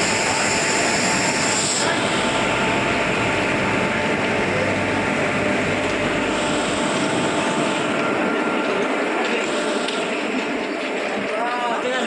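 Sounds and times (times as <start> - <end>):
train running: 0.0 - 12.0.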